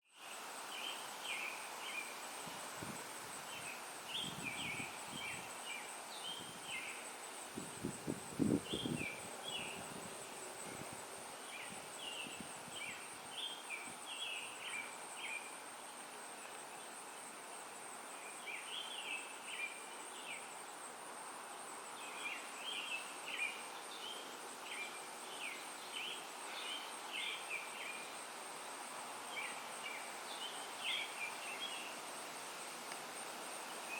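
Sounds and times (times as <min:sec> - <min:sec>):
songbirds chirping: 0:00.1 - 0:33.9.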